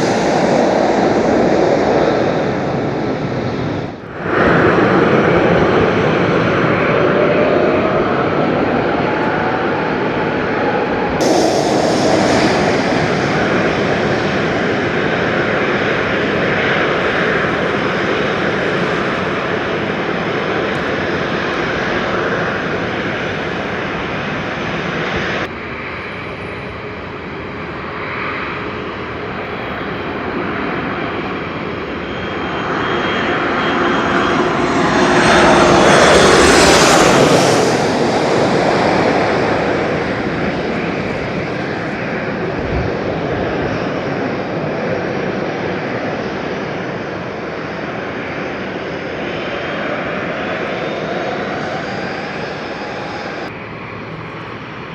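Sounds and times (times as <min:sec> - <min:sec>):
airliner engines passing: 0:00.0 - 0:54.9.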